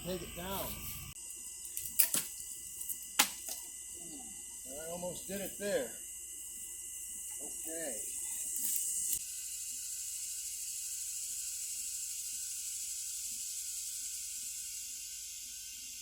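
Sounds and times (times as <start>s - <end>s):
steady high hiss: 0.0s - 1.2s, 4.6s - 6.7s.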